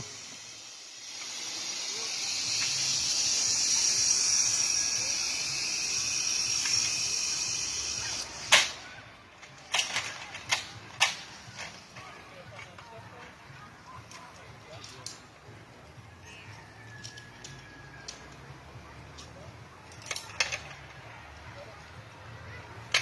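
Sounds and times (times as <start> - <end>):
zipline pulleys whirring on cable: 0.0 - 8.9.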